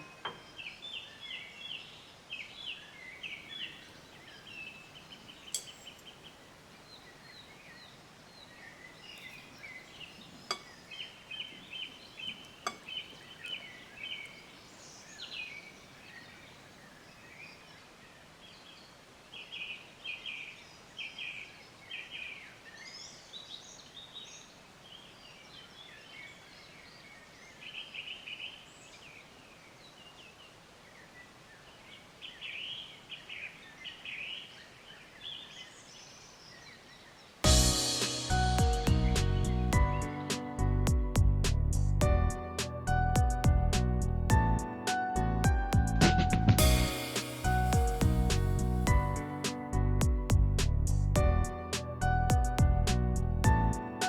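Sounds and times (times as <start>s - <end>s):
small birds chirping: 0.0s - 41.2s, 46.2s - 50.3s
faint outdoor hiss: 0.0s - 53.0s.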